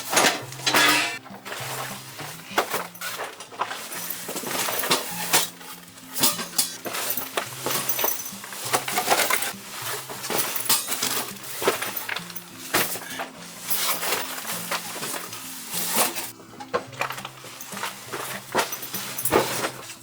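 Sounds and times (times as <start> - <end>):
dishes and utensils clinking: 0.0 - 20.0.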